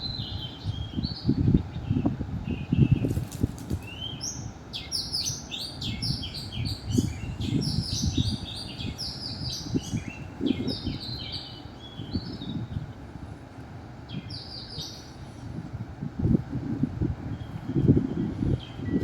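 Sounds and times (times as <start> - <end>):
small birds chirping chorus: 0.0 - 15.8, 17.2 - 19.0.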